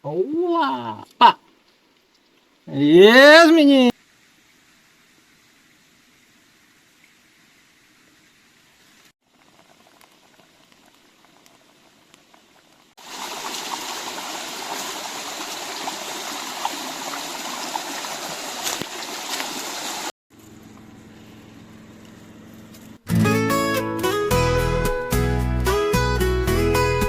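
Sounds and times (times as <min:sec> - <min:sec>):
faint hiss: 0:00.7 - 0:13.6
stream water rushing: 0:13.0 - 0:20.1.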